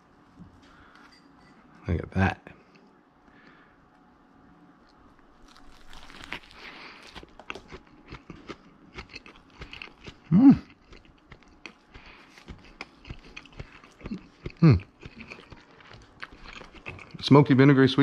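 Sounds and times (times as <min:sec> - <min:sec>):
person chewing food: 0:04.8 - 0:17.2.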